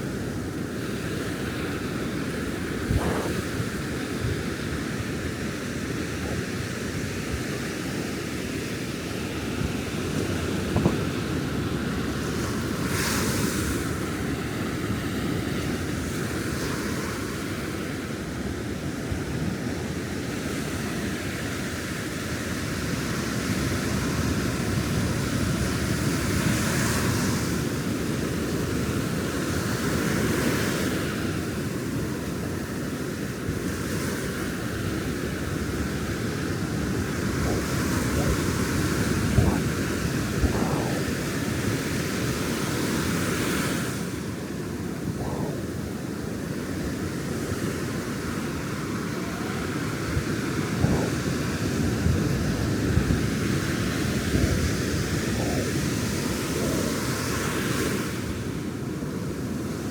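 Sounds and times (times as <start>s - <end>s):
wind rumble on microphone: 0.0s - 59.9s
ocean surf breaking: 33.3s - 59.9s.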